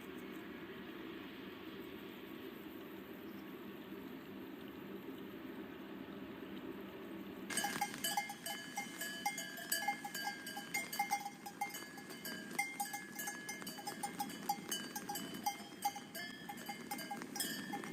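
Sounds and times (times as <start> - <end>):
small metal bells jingling: 7.5 - 17.9.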